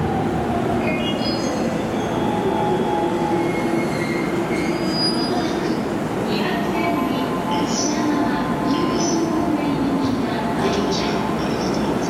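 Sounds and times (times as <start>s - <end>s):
electric train humming: 0.0s - 12.0s
train brakes squealing: 0.9s - 5.8s.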